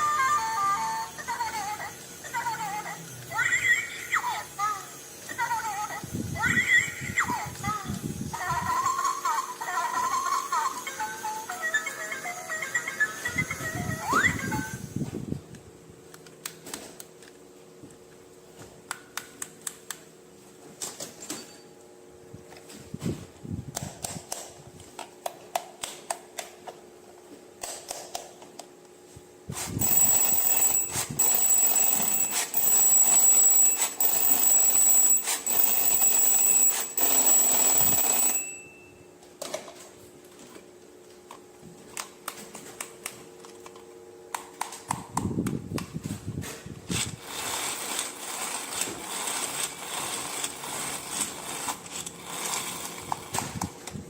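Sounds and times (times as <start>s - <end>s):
pulsing high electronic ringing: 29.8s - 39.1s.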